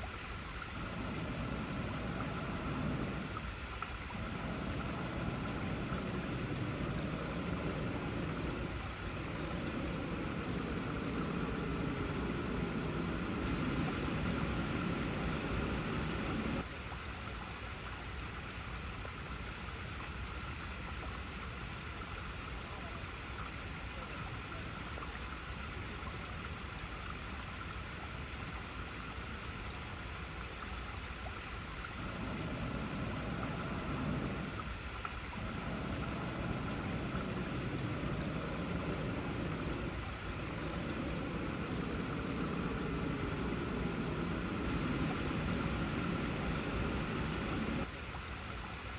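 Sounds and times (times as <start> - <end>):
water rushing over rocks: 0.0 - 17.0, 31.0 - 48.9
deep rumble: 4.0 - 16.6, 32.0 - 47.9.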